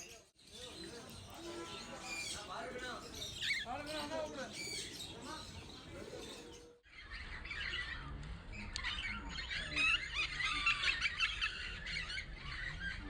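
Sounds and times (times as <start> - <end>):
lovebirds chattering and squawking: 0.0 - 13.0.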